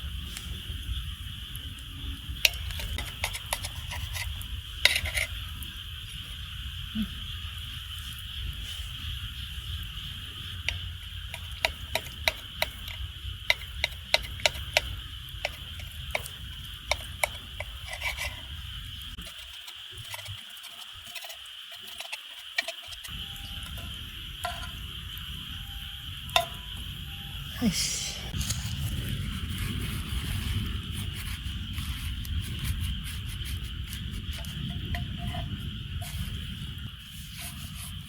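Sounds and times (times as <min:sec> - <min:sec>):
night insects chorus: 0:00.0 - 0:38.0
low steady rumble: 0:23.0 - 0:38.0.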